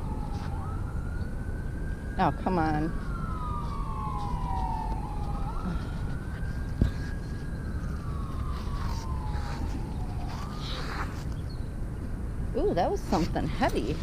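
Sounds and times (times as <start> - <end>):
emergency siren wailing: 0.0 - 14.0.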